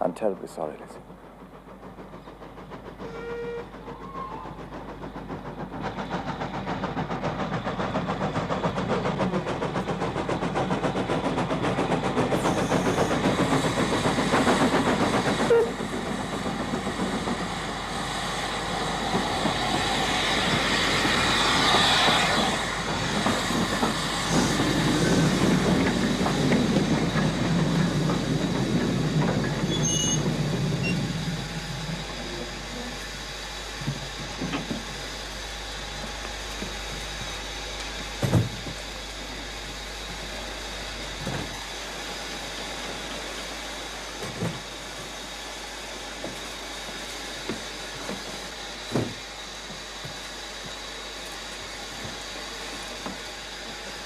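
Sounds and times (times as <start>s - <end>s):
train wheels clattering: 0.6s - 33.0s
steam train puffing: 1.2s - 54.0s.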